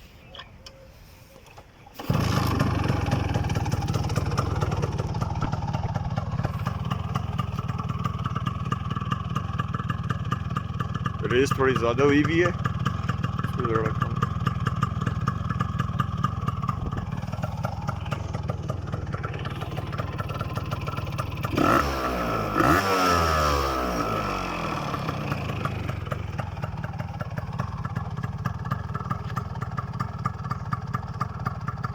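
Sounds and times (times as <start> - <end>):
two-stroke engine idling: 2.0 - 31.9
engine revs blipped: 21.4 - 25.3.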